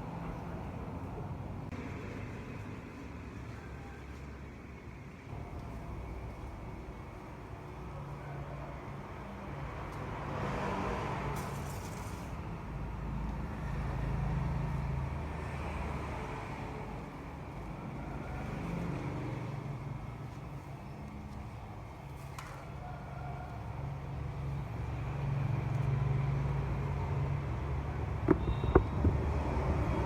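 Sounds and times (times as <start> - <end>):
vehicle engine hum: 0.0 - 30.0.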